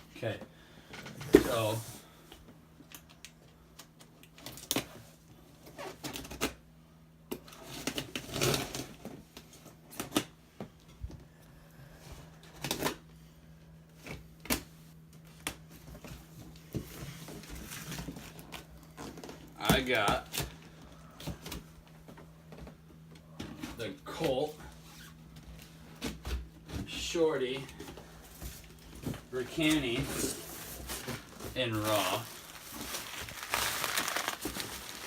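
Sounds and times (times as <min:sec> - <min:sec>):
paper rustling: 0:29.5 - 0:35.0.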